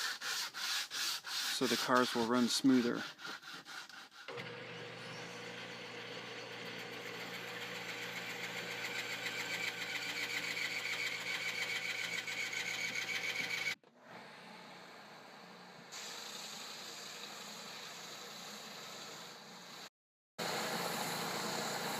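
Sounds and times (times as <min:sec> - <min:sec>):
power sander on wood: 0:00.3 - 0:13.8.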